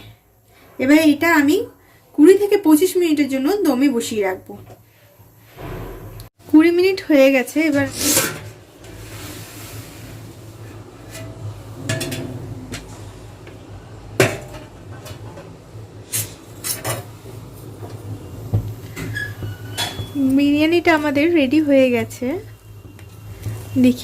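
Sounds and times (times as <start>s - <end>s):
metal pot and lid clinking: 11.0s - 12.5s.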